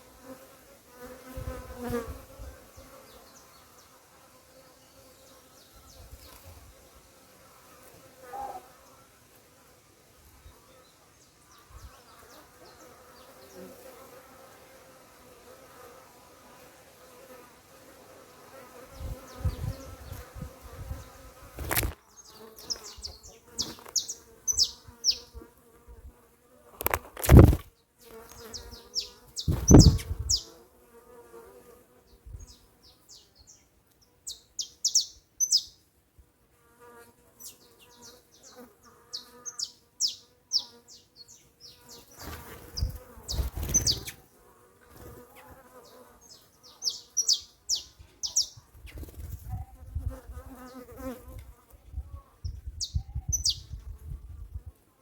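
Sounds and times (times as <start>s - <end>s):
bees buzzing: 0.0s - 2.2s, 17.1s - 25.5s, 26.8s - 31.7s, 36.8s - 48.6s
short high bird chirps: 22.6s - 25.3s, 34.3s - 35.8s, 39.2s - 41.4s, 46.8s - 48.6s.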